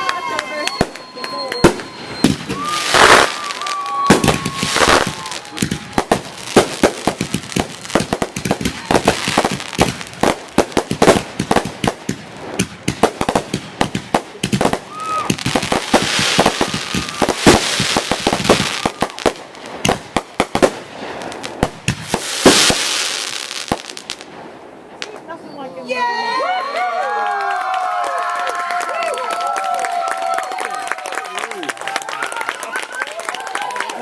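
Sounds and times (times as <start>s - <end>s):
fireworks bangs and crackles: 0.0s - 25.7s.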